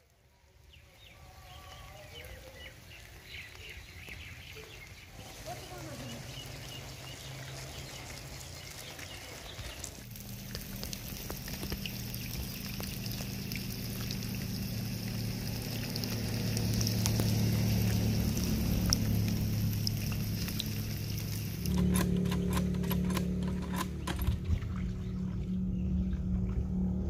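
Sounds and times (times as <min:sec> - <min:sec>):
steady rain: 0:00.0 - 0:23.2
low steady hum: 0:10.0 - 0:27.0
drops ticking on water: 0:10.1 - 0:25.0.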